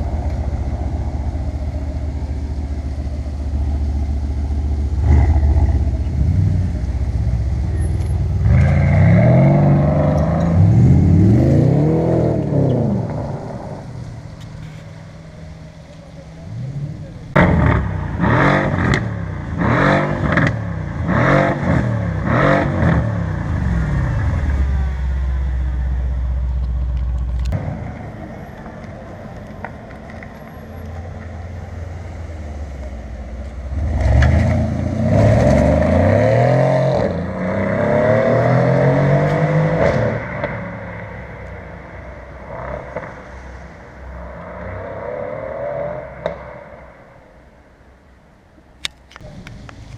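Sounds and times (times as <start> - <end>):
car accelerating hard: 0.0 - 14.3, 16.3 - 25.0, 33.5 - 43.4
car engine idling: 0.0 - 18.2, 23.0 - 34.3
car engine revving: 0.0 - 47.4.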